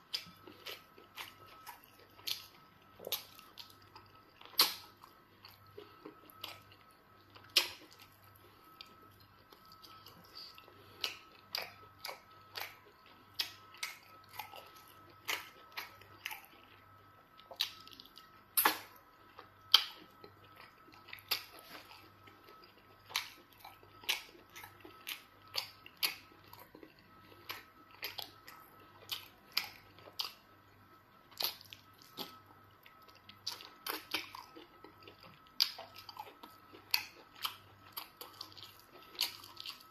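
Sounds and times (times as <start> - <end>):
chewing clicks and crunches: 0.0 - 30.5, 31.2 - 39.9.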